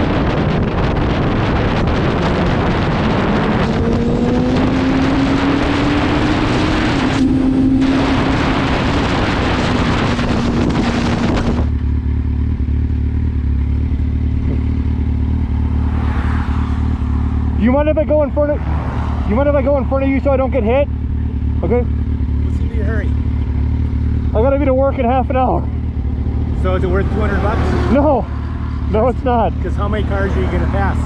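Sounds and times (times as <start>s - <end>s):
wind noise on helmet microphone: 0.0s - 12.0s, 14.1s - 15.6s
motorcycle engine: 0.0s - 31.0s.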